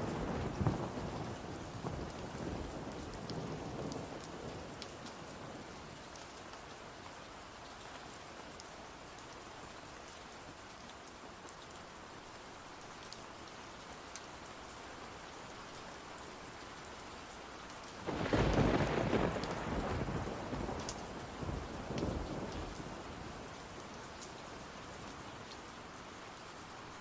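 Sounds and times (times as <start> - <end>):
steady rain falling: 0.0 - 27.0
thunder clap rumbling: 18.1 - 22.6.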